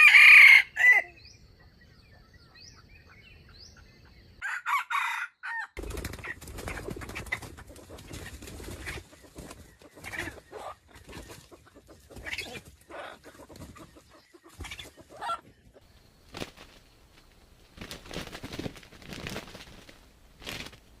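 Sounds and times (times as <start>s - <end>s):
chicken clucking: 6.1s - 16.2s.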